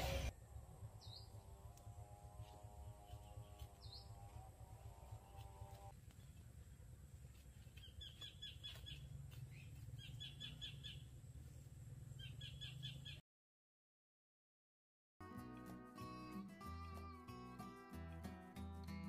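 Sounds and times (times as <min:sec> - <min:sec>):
low outdoor rumble: 0:00.0 - 0:13.1
bird chirping rapidly: 0:07.8 - 0:11.0, 0:12.2 - 0:13.2.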